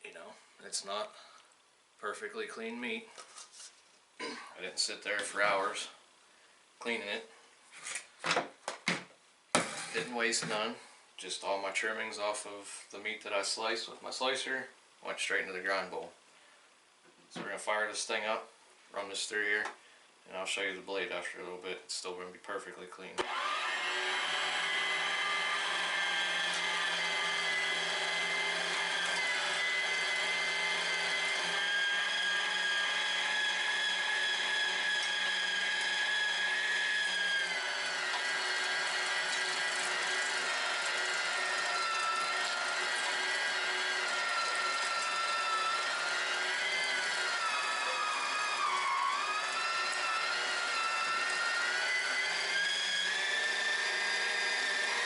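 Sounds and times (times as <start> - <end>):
electric meat grinder motor whine: 23.2 - 55.0.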